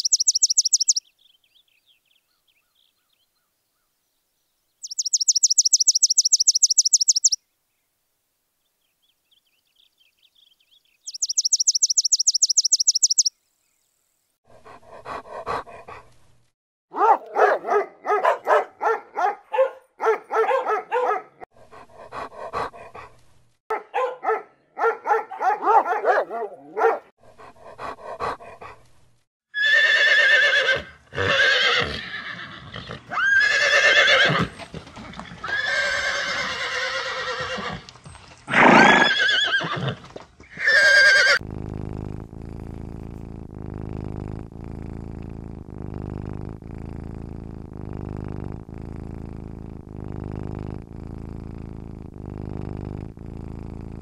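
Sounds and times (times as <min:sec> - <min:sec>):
bird trilling: 0:00.0 - 0:01.1, 0:04.8 - 0:07.4, 0:11.0 - 0:13.3
horses whinnying: 0:29.6 - 0:37.9, 0:38.5 - 0:41.4.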